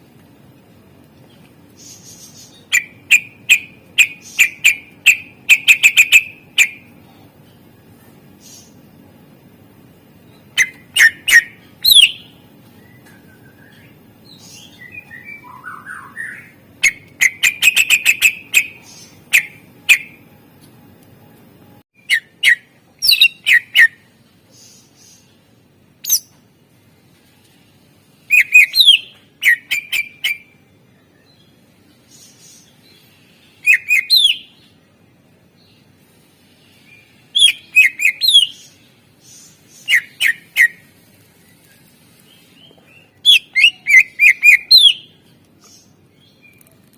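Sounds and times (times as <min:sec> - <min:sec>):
bird singing whistled chirps: 0:10.4 - 0:20.2, 0:22.0 - 0:24.1, 0:26.0 - 0:26.3, 0:28.3 - 0:30.6, 0:33.6 - 0:34.6, 0:36.9 - 0:40.9, 0:42.4 - 0:45.2.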